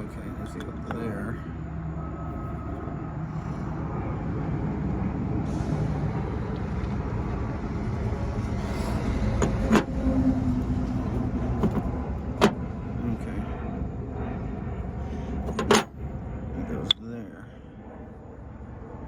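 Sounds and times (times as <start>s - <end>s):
steady low rumble: 0.0s - 19.0s
wire stripper parts handled: 9.4s - 10.0s, 11.0s - 12.6s, 15.4s - 15.9s.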